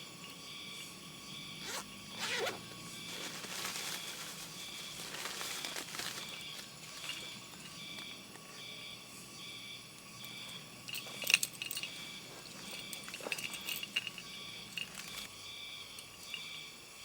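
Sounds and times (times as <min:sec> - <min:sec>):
insects chirping: 0:00.0 - 0:17.0
rustling: 0:01.6 - 0:07.8, 0:10.9 - 0:15.3.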